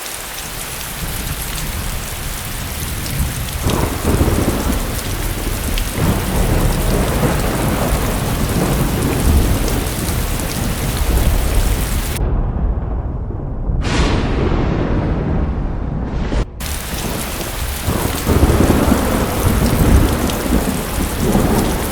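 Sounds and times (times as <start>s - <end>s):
heavy rain hissing: 0.0s - 12.2s, 16.6s - 21.9s
thunder rumbling: 0.4s - 21.9s.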